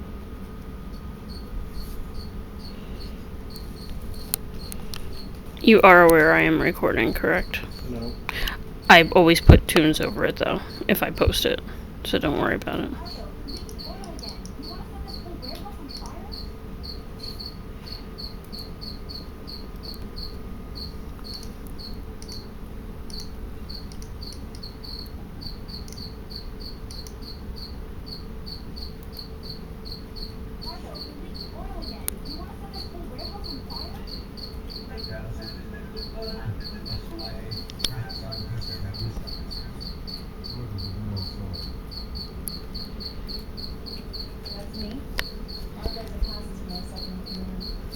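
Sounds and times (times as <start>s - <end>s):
cricket chirping: 0.0s - 47.9s
low room background: 0.0s - 47.9s
faint sharp clicks: 3.6s - 6.2s, 21.1s - 22.5s, 23.1s - 24.7s, 25.8s - 26.1s, 26.9s - 27.2s.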